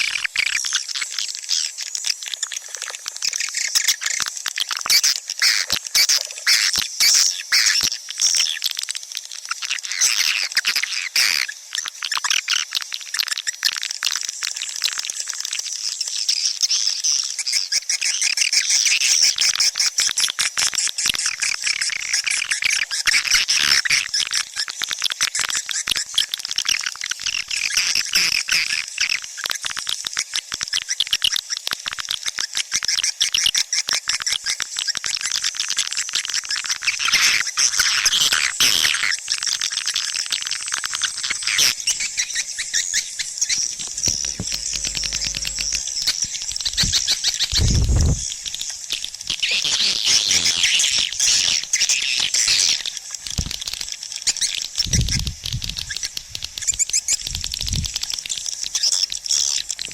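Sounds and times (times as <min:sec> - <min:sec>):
swiftlets twittering: 0:40.6 - 0:52.0.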